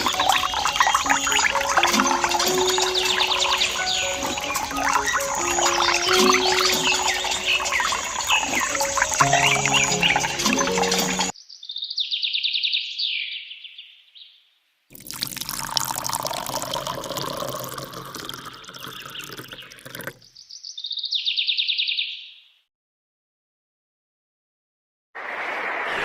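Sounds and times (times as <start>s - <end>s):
running pouring water: 0.0s - 11.3s, 14.9s - 20.2s
bird trilling song: 0.0s - 14.4s, 18.8s - 22.5s.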